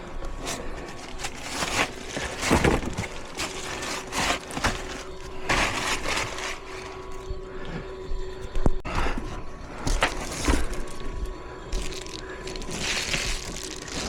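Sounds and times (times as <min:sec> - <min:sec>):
draft inducer motor humming: 0:00.0 - 0:14.0
rough scraping rattles: 0:00.4 - 0:07.2.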